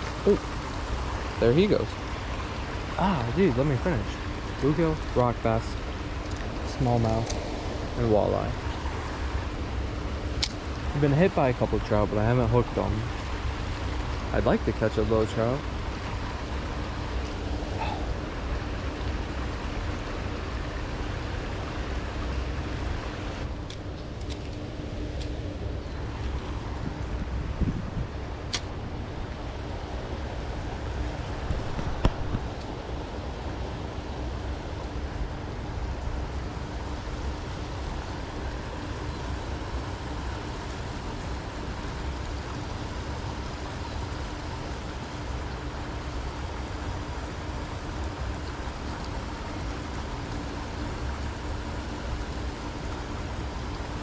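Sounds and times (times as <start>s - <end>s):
faint steady hum: 0.0s - 54.0s
river water running: 0.0s - 54.0s
wind on microphone: 26.0s - 34.1s
wind buffeting microphone: 26.0s - 44.2s.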